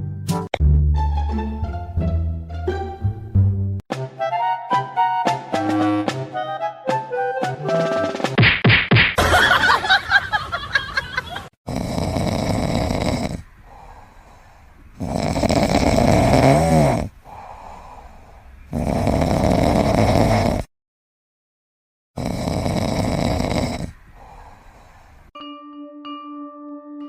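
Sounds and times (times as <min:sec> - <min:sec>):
pet snoring: 0:11.7 - 0:14.1, 0:15.0 - 0:18.1, 0:18.7 - 0:20.7, 0:22.2 - 0:25.0.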